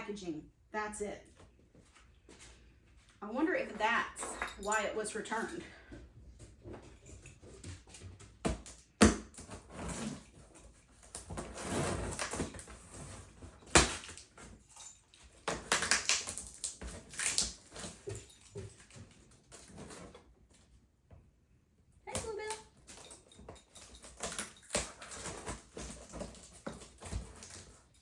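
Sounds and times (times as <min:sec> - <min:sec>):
cardboard scraping and rustling: 0:09.4 - 0:14.3.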